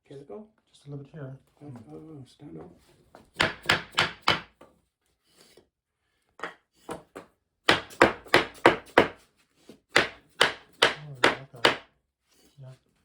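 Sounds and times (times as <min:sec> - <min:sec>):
wooden knocks on floor tile: 0:02.6 - 0:04.8, 0:06.4 - 0:09.2.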